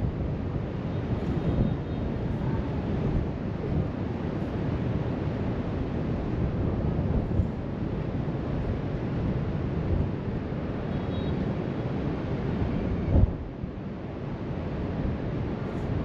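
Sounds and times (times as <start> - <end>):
wind blowing across microphone: 0.0 - 16.0.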